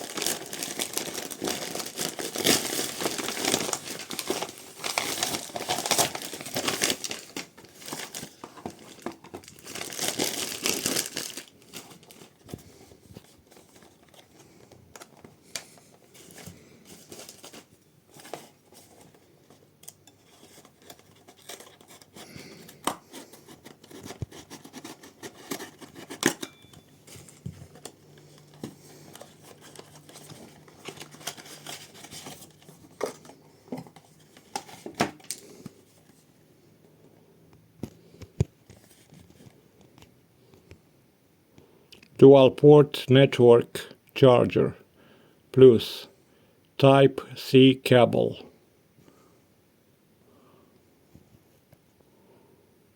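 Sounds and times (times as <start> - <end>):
packaging crinkling and tearing: 0.0 - 19.3, 19.9 - 26.5, 27.1 - 35.8.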